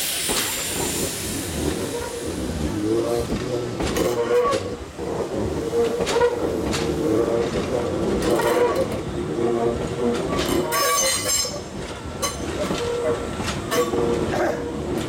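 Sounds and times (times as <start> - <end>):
low train hum: 0.0 - 15.0
wheels clicking over rail joints: 3.2 - 15.0.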